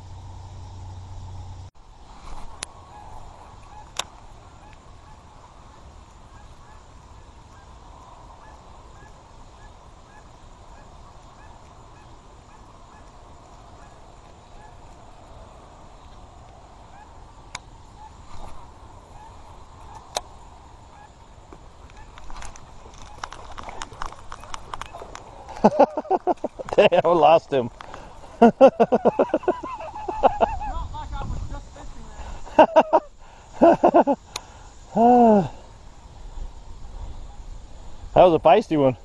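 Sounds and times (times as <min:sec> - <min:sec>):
animal chorus: 0:02.7 - 0:30.9, 0:31.7 - 0:39.0
sharp clicks: 0:21.8 - 0:25.7.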